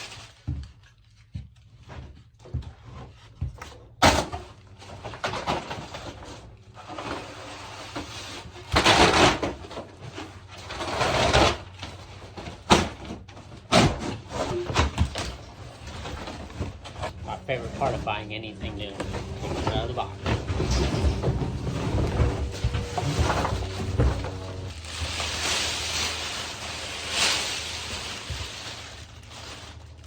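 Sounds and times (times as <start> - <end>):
cardboard tearing and scraping: 6.9 - 30.0
cardboard knocks and clunks: 19.0 - 24.7.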